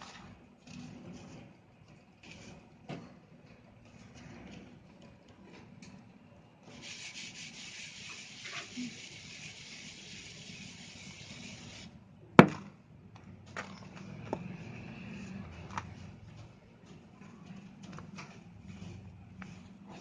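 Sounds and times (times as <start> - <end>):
gritty rubbing hiss: 6.7 - 11.9.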